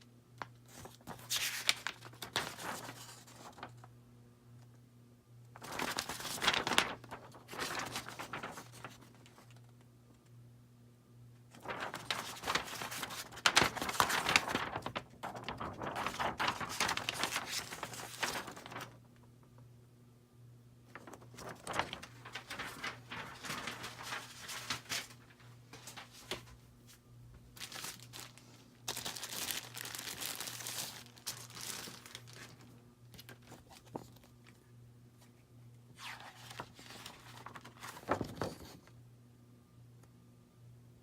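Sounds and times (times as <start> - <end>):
packing material crinkling: 0.6 - 3.8, 5.6 - 9.6, 11.6 - 19.0, 20.9 - 26.5, 27.5 - 34.5.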